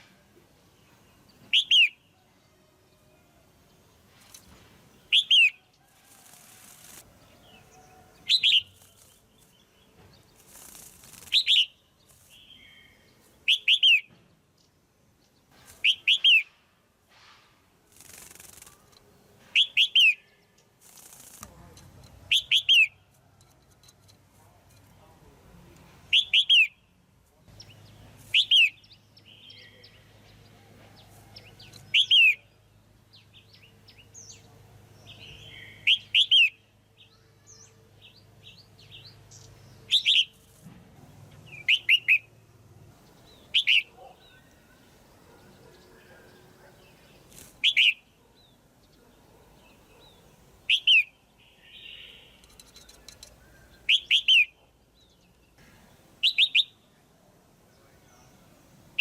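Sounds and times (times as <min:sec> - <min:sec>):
faint bird chirps: 0:04.1 - 0:16.6, 0:43.0 - 0:59.0
bird sharp calls: 0:05.1 - 0:09.6, 0:10.4 - 0:14.1, 0:15.6 - 0:16.6, 0:19.6 - 0:20.4, 0:22.3 - 0:23.0, 0:31.3 - 0:32.5, 0:41.5 - 0:42.3, 0:43.2 - 0:54.8.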